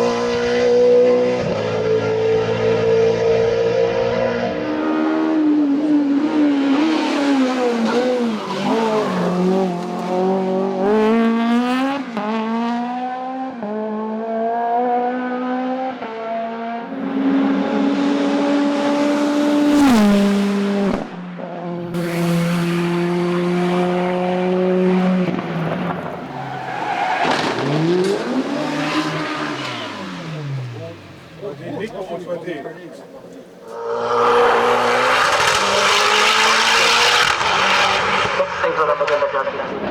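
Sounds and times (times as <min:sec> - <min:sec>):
race car engine at full throttle: 0:00.0 - 0:39.9.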